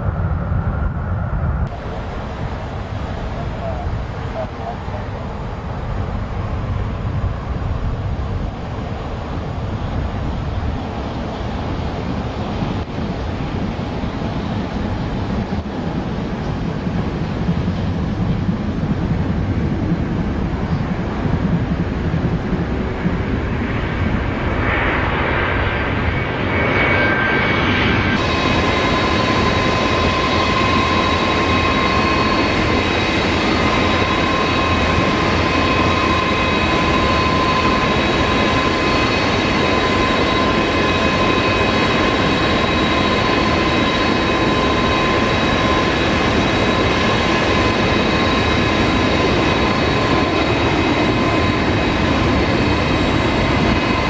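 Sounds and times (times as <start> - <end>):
jet engines roaring and whining: 0.0 - 54.0.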